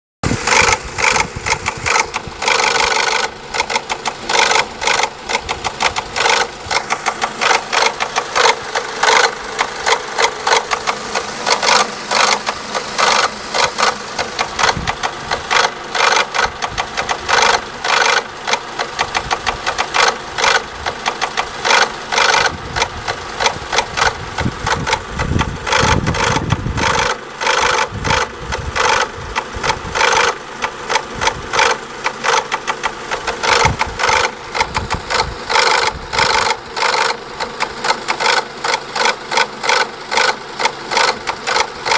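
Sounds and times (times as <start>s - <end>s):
fast uneven engine tapping: 0.2s - 41.9s
petrol engine running: 0.2s - 41.9s.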